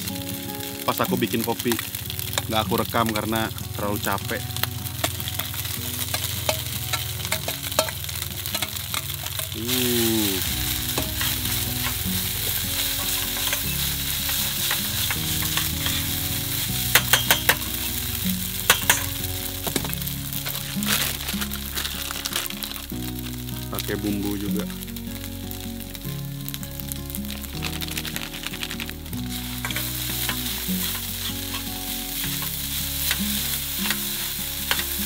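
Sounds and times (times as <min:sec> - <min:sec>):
rice sizzling in a steel pan: 0:00.0 - 0:35.0
spoon scraping and tapping a pan: 0:05.0 - 0:09.6, 0:10.9 - 0:12.0, 0:12.8 - 0:16.1, 0:16.9 - 0:17.8, 0:18.7 - 0:20.6, 0:29.6 - 0:35.0.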